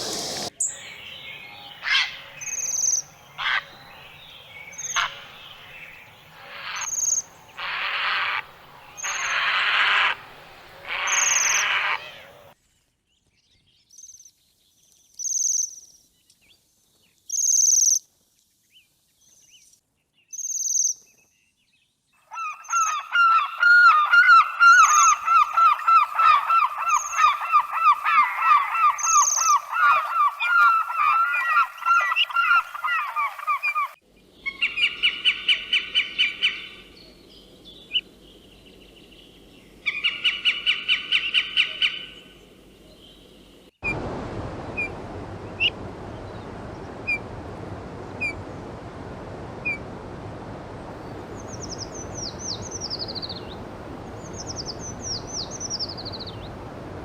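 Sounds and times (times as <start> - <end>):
flock of birds calling: 0.0 - 5.8, 6.4 - 12.6, 22.3 - 36.8
steady background hiss: 0.0 - 12.6, 24.6 - 57.0
fast repeated bird calls: 6.4 - 12.5, 22.3 - 36.8.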